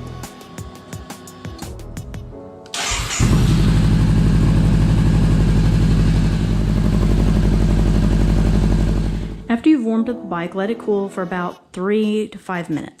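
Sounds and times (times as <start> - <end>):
background music: 0.0 - 3.7, 9.4 - 13.0
motorcycle engine starting: 2.7 - 9.5
motorcycle engine idling: 2.8 - 9.5.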